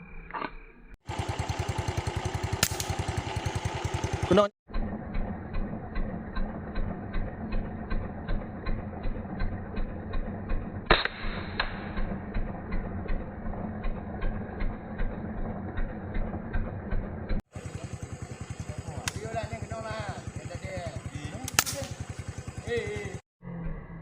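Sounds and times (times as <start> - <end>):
steady ticking: 1.3 - 23.2
air rifle shot: 10.9 - 12.1, 21.5 - 22.0.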